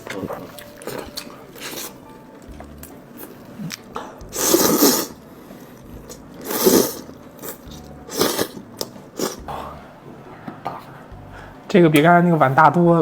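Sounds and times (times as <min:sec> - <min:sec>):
person slurping noodles: 0:03.6 - 0:05.2, 0:06.1 - 0:09.7.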